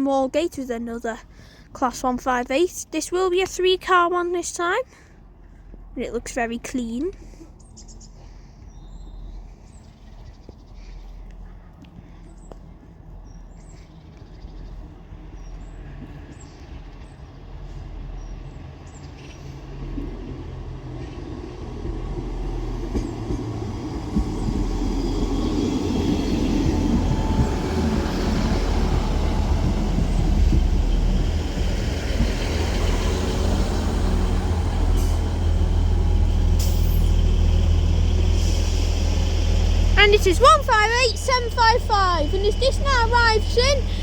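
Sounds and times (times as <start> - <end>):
wheels on rails: 7.0 - 44.0
diesel engine drone: 22.1 - 44.0.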